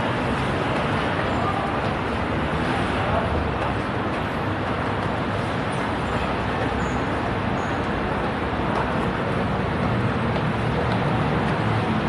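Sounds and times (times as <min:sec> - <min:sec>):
bicycle road noise: 0:00.0 - 0:12.0.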